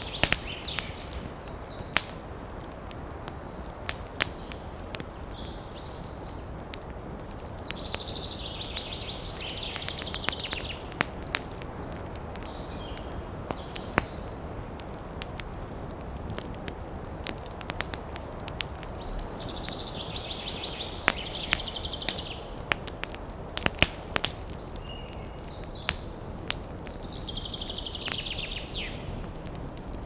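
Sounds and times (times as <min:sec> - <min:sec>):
campfire crackling: 0:00.0 - 0:30.0
wind in the trees: 0:00.0 - 0:30.0.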